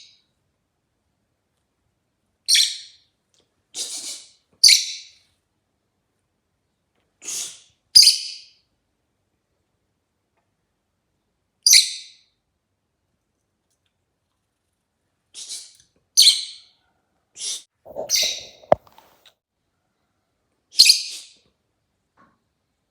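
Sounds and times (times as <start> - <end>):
soft raspy bird calls: 17.4 - 19.2
lovebird chirping: 17.9 - 19.2.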